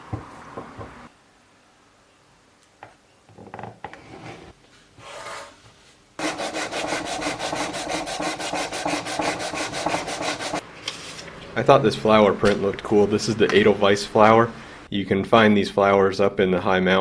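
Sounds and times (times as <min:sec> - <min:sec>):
hand sanding wood: 0:06.2 - 0:11.2.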